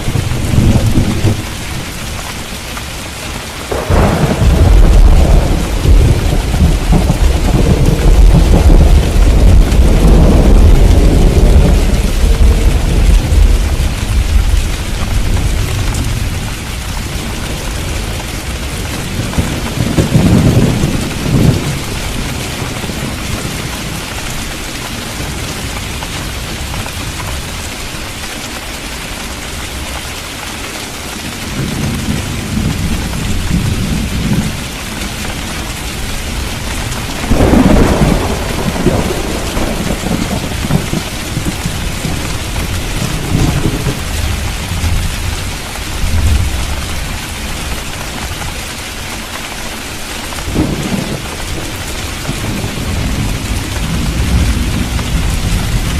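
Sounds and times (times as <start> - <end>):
rolling thunder: 0.0 - 1.9, 3.6 - 24.0, 31.5 - 47.8, 50.4 - 55.9
heavy rain: 0.0 - 55.9.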